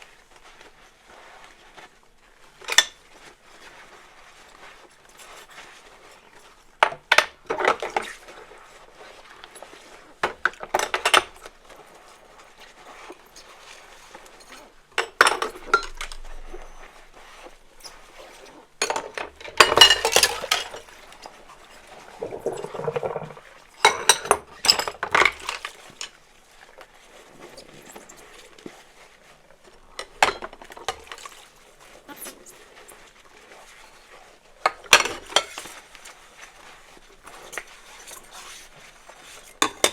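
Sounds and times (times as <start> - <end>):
dishes and cutlery clinking: 14.3 - 17.0, 18.8 - 26.2, 29.9 - 31.4, 34.7 - 35.8, 39.4 - 39.9
water sloshing: 19.4 - 33.8.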